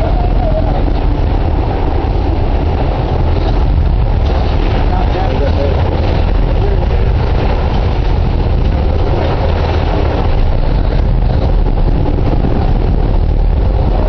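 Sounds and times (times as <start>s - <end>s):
boat engines droning: 0.0s - 14.0s.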